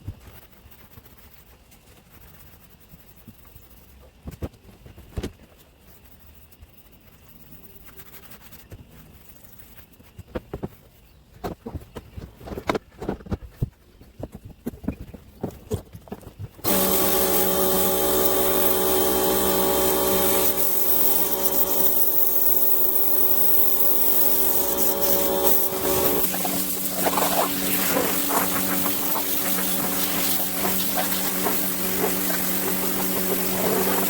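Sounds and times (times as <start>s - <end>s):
pressure washer running: 16.6s - 34.0s.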